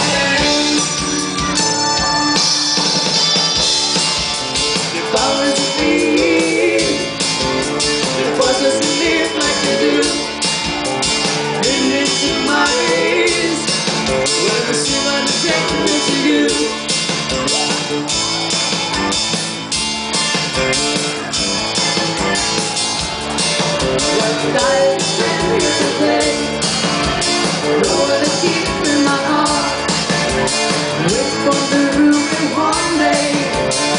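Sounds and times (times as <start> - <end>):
person singing: 0.0 - 2.2, 4.8 - 10.5, 11.5 - 17.7, 24.0 - 26.8, 27.6 - 30.0, 31.0 - 33.9
drums: 0.0 - 33.9
electric guitar: 0.0 - 33.9.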